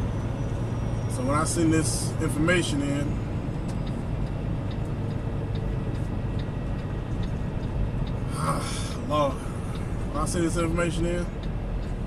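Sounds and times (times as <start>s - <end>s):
truck engine and road noise: 0.0s - 12.0s
faint regular tick: 3.6s - 8.3s, 11.0s - 12.0s.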